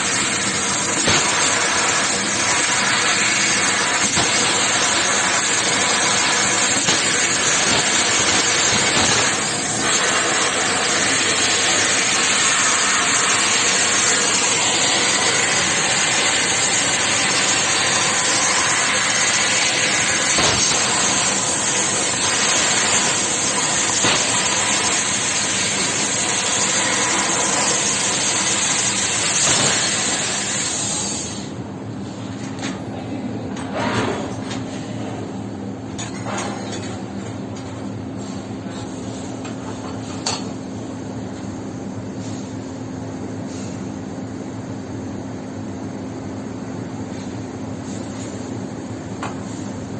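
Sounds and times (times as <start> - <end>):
metal-cutting machine hissing: 0.0 - 31.6.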